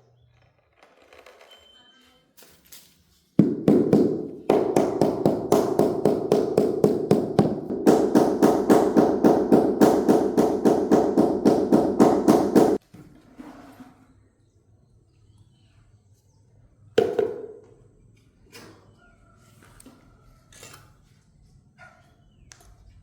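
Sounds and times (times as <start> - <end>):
mallet tapping floor tiles: 3.4 - 12.8.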